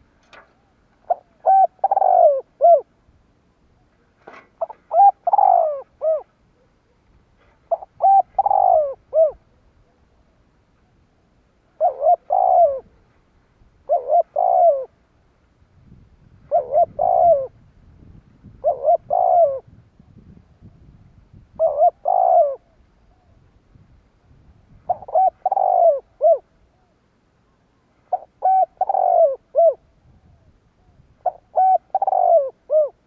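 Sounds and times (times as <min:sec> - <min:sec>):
dove cooing: 0:00.0 - 0:02.9, 0:03.8 - 0:10.0, 0:10.8 - 0:13.2, 0:13.8 - 0:15.0, 0:16.4 - 0:19.8, 0:21.5 - 0:23.5, 0:24.8 - 0:27.0, 0:28.0 - 0:33.0.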